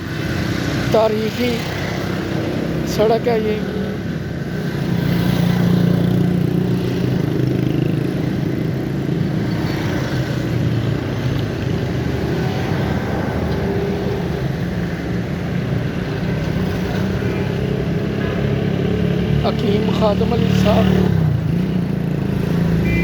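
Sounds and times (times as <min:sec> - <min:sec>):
road noise: 0:00.0 - 0:23.0
vehicle engine humming: 0:05.8 - 0:23.0.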